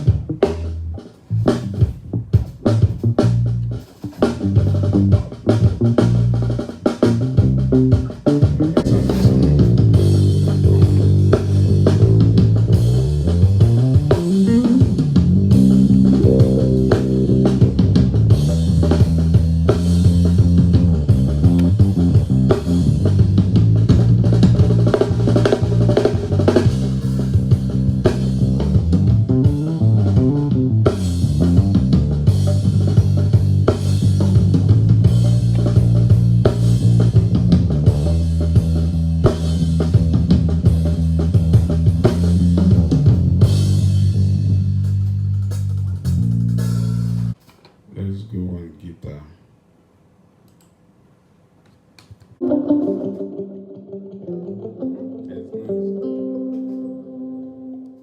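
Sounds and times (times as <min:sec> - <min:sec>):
bass guitar with sliding notes: 0:00.0 - 0:47.4, 0:52.4 - 0:58.0
guitar: 0:00.0 - 0:47.4, 0:52.4 - 0:58.0
drum kit: 0:00.0 - 0:47.9, 0:52.4 - 0:53.4.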